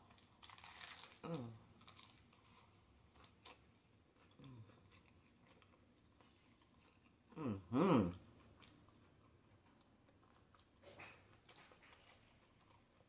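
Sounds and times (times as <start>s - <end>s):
close-up chewing: 0.0s - 7.4s, 8.1s - 13.0s
crunch of taco shell bite: 0.1s - 3.6s
person humming: 1.2s - 1.6s, 7.4s - 8.2s.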